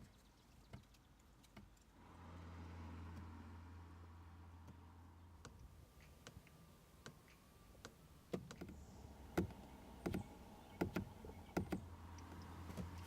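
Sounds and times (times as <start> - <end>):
sharp clicks and knocks: 5.4 - 13.0.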